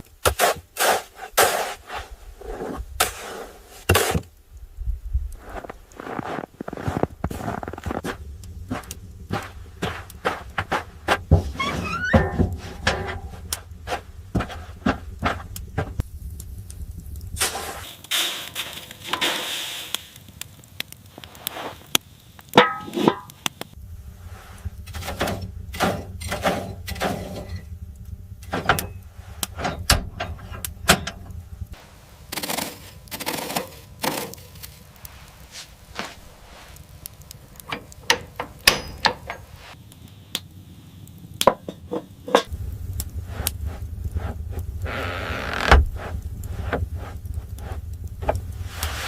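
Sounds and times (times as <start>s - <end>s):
rustling or scraping: 0.3s - 4.3s, 5.2s - 16.6s, 17.2s - 20.4s, 21.1s - 22.0s, 22.6s - 39.9s, 41.7s - 49.0s
low steady hum: 2.1s - 19.3s, 22.1s - 49.0s
knocks and clatter: 7.2s - 16.1s, 24.6s - 31.8s.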